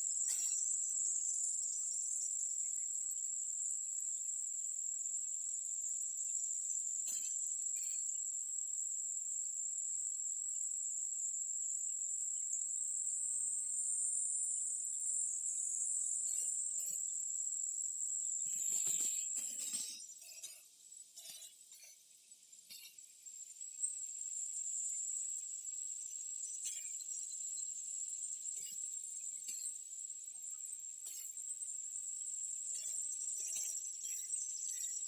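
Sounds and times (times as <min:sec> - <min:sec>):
insects droning: 0:13.8 - 0:35.0.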